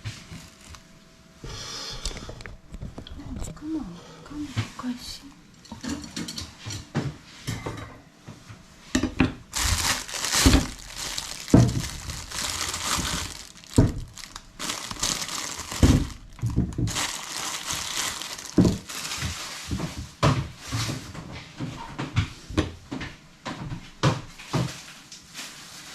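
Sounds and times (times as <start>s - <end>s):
crinkling and rustling: 0.0s - 0.9s, 9.5s - 21.8s, 24.2s - 25.9s.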